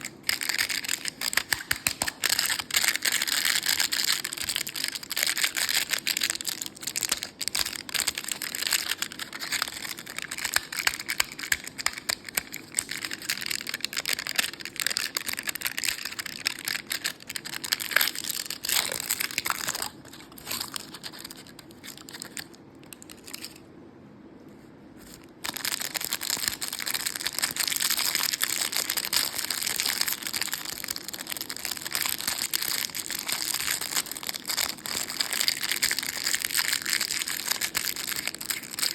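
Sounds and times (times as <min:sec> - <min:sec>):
candy wrappers crinkling: 0:00.0 - 0:23.6, 0:25.1 - 0:38.9.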